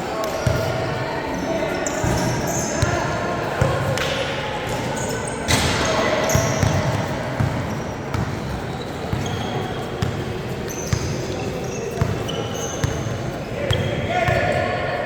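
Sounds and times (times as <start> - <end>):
crowd chatter: 0.0 - 15.0
shoe squeaks: 1.3 - 3.0, 4.9 - 14.1
basketball bouncing on court: 5.5 - 14.6.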